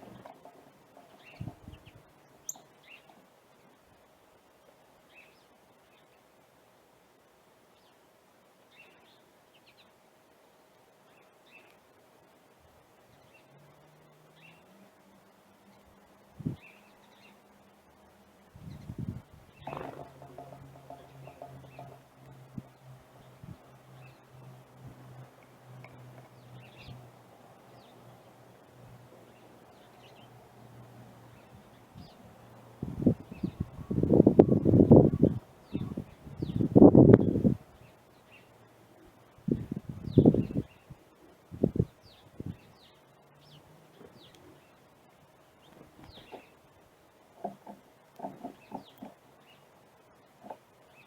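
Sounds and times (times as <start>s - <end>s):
small birds chirping: 0.0s - 3.8s, 4.6s - 6.3s, 8.7s - 10.0s, 11.0s - 11.9s, 15.6s - 51.0s
bird chirps: 33.3s - 37.4s.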